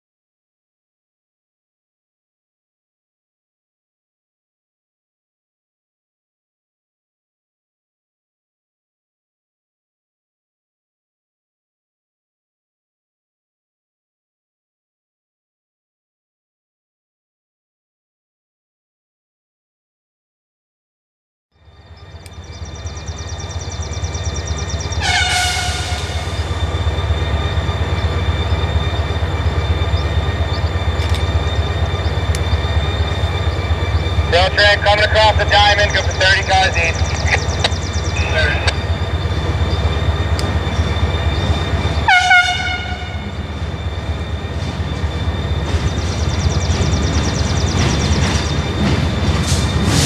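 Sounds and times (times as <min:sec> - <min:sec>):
train rumbling: 0:21.7 - 0:50.0
train horn blast: 0:25.0 - 0:26.8, 0:32.4 - 0:44.6.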